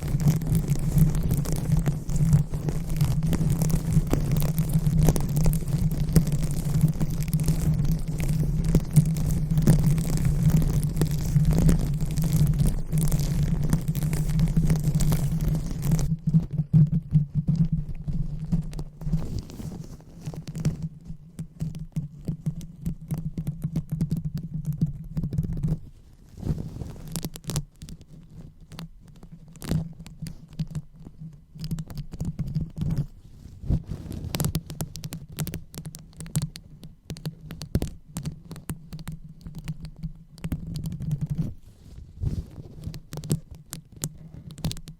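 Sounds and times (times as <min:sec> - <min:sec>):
microphone rubbing rumble: 0:00.0 - 0:22.5, 0:24.7 - 0:27.1, 0:32.3 - 0:34.8, 0:40.4 - 0:44.8
microphone crackles and taps: 0:00.0 - 0:44.9.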